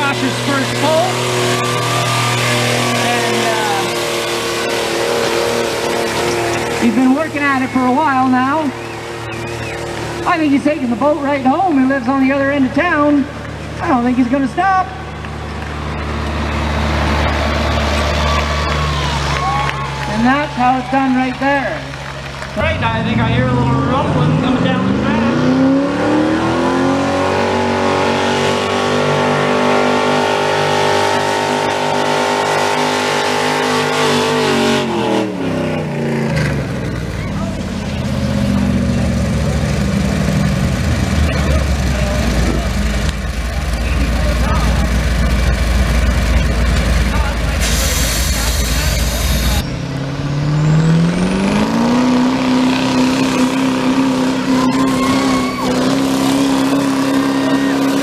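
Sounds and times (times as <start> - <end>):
truck engine revving hard: 0.0 - 58.0.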